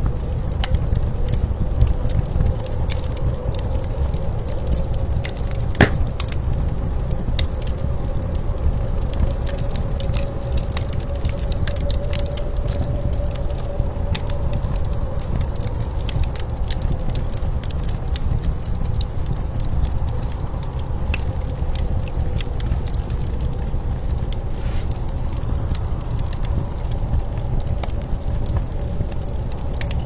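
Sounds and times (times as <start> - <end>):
wood fire crackling and popping: 5.2 - 6.8, 19.3 - 30.0.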